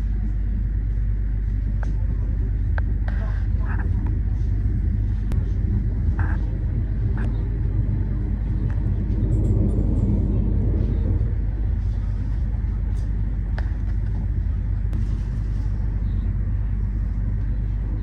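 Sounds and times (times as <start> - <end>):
train rumbling on track: 0.0 - 18.0.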